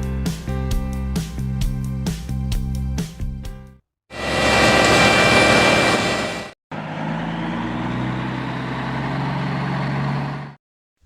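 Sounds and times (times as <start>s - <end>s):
loud construction machine noise: 4.1s - 10.6s
steady engine hum: 4.1s - 10.6s.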